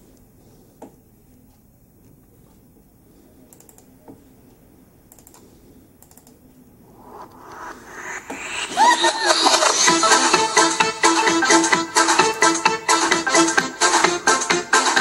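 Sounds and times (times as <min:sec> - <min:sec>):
laptop keyboard clicks: 0:05.1 - 0:05.4, 0:06.0 - 0:06.4
music from laptop speakers: 0:06.9 - 0:15.0.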